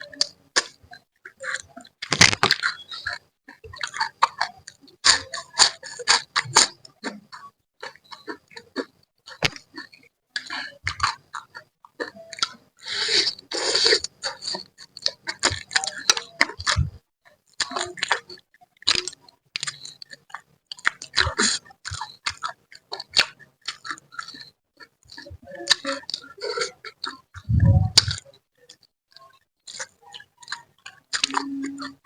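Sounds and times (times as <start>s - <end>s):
chewing: 0.0s - 32.0s
wet lip smacks and clicks: 0.1s - 16.9s, 17.6s - 32.0s
short slurps: 27.1s - 28.2s.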